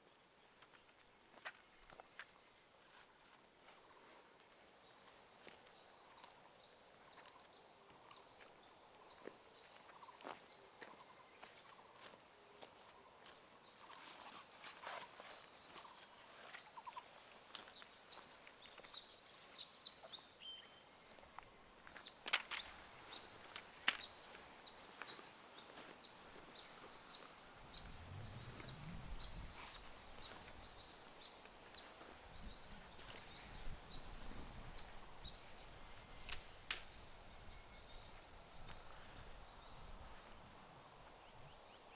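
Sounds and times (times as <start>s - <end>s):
low rumble: 27.6s - 29.6s.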